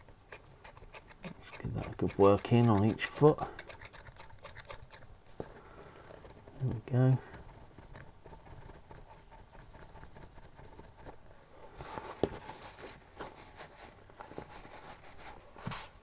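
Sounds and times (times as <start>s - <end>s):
tiny squeaks: 0.0s - 11.3s.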